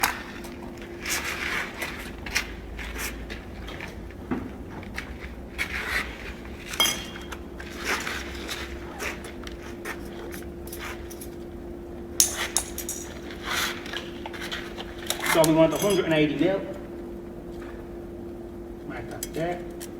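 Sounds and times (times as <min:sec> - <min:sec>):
faint hum: 0:00.0 - 0:19.9
hand tools knocking and clinking: 0:06.7 - 0:07.4, 0:12.2 - 0:13.3, 0:15.0 - 0:16.1.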